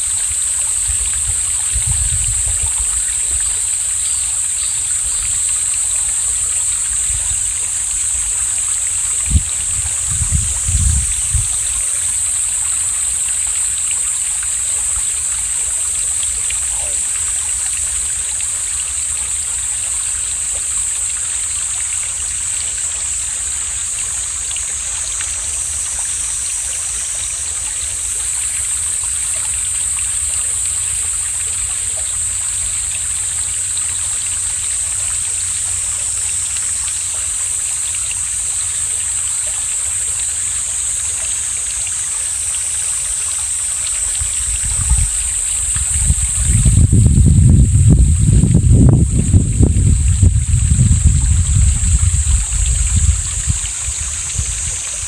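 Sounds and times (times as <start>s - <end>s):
wind rumbling on microphone: 0.0s - 12.7s, 43.8s - 55.0s
mountain stream flowing: 0.0s - 55.0s.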